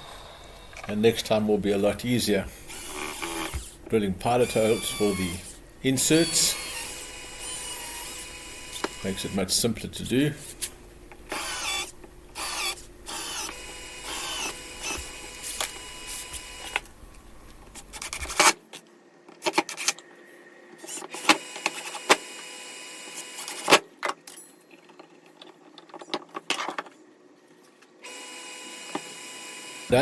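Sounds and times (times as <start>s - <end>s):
cordless drill motor whine: 2.5s - 9.5s, 11.2s - 17.5s, 20.9s - 23.6s, 28.0s - 30.0s.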